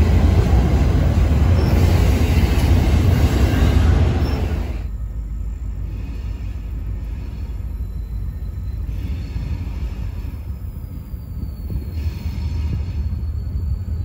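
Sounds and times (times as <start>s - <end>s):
distant freight train rumbling: 0.0s - 14.0s
faint high squeal: 3.5s - 14.0s.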